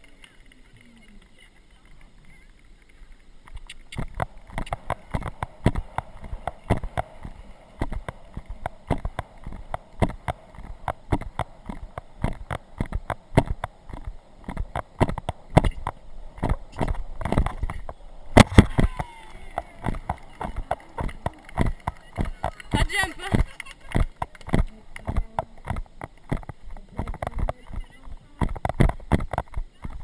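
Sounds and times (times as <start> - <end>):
horse hoofbeats at a canter: 4.0 - 30.0.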